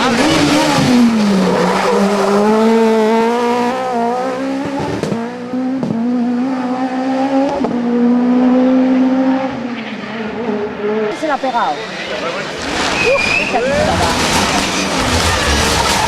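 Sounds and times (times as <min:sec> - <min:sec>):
car engine at high revs: 0:00.0 - 0:16.0.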